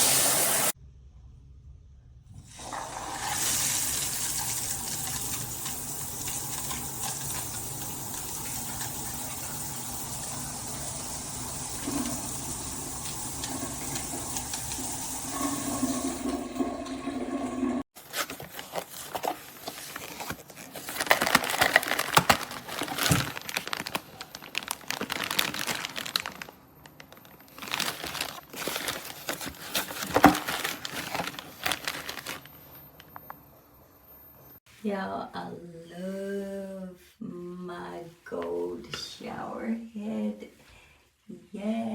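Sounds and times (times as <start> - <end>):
shower head spraying water: 3.1 - 16.4
crackling and splattering: 21.0 - 29.5.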